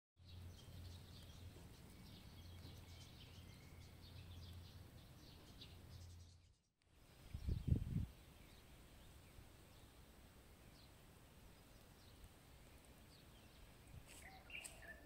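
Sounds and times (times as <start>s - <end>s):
faint birds chirping: 0.2s - 15.0s.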